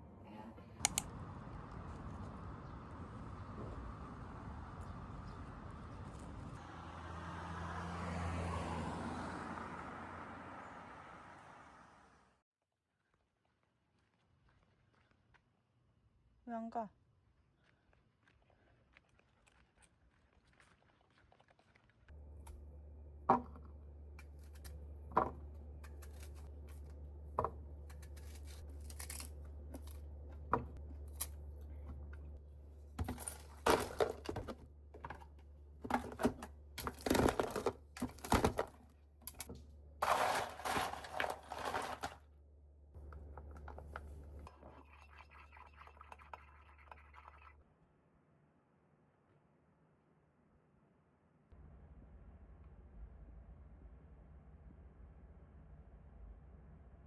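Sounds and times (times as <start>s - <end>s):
rustling and scraping: 27.9s - 42.3s.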